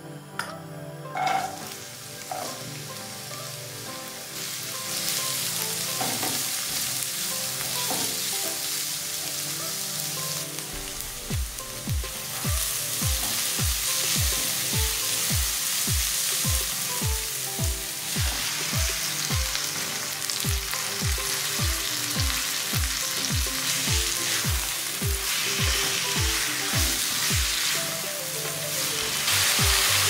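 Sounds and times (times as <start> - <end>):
onion and chicken sizzling in oil: 1.1 - 30.0
background music with drum beat: 10.7 - 30.0.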